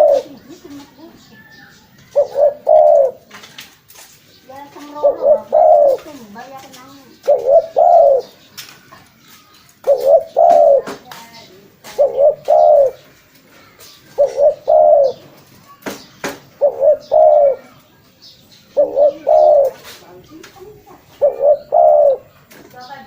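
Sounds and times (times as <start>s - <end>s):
dove cooing: 0.0s - 3.5s, 4.6s - 8.4s, 9.8s - 15.4s, 16.5s - 17.9s, 18.7s - 22.5s.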